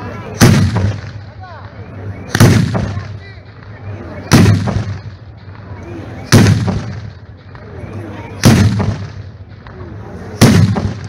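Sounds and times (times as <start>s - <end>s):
fireworks booming: 0.2s - 7.7s, 8.3s - 11.0s.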